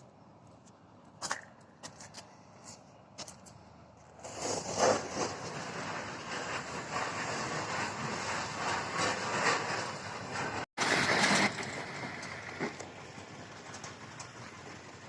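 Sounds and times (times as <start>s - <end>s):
heavy machinery running: 5.2s - 15.0s.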